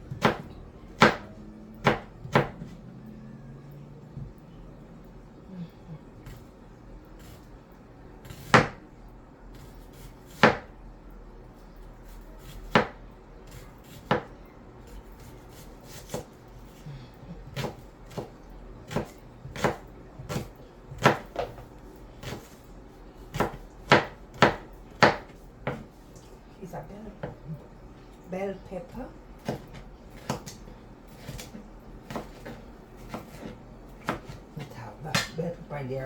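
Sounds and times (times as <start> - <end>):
knife chopping on cutting board: 0.1 - 2.7, 8.2 - 8.8, 9.5 - 10.7, 12.0 - 14.3, 15.0 - 16.8, 17.5 - 22.6, 23.3 - 26.0, 29.4 - 35.4.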